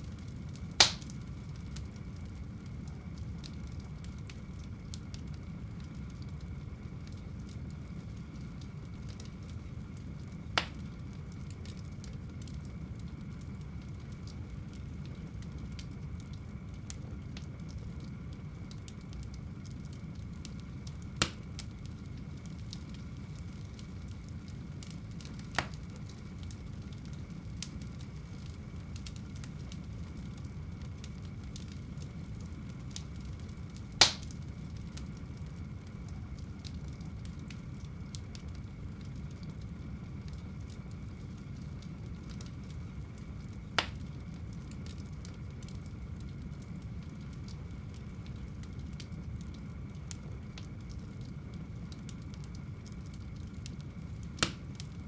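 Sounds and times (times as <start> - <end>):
fire crackling: 0.0 - 55.0
wood fire rumble: 0.0 - 55.0
sharp pops of burning wood: 0.1 - 2.3, 10.6 - 11.0, 20.4 - 35.2, 40.2 - 45.8, 53.1 - 54.9.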